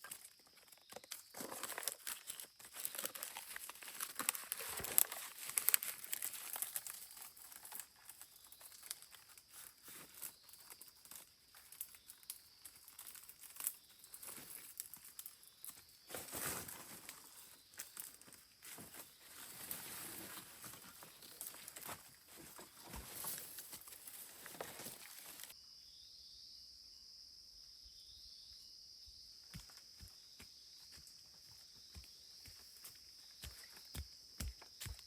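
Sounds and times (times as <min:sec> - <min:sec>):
crinkling handling noise: 0:00.0 - 0:25.6.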